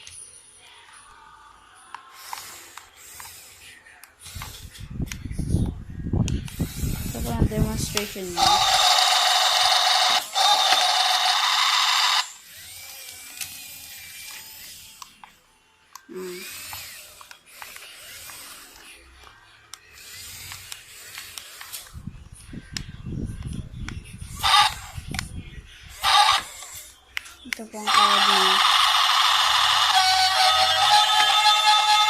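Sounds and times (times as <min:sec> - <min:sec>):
toy excavator whirring: 0:00.0 - 0:32.0.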